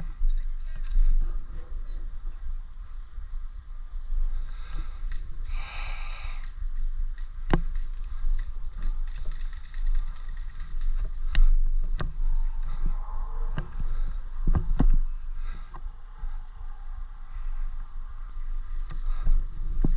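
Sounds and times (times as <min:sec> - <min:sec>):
microphone handling rumble: 0:00.0 - 0:19.9
sharp clicks: 0:05.1 - 0:12.1.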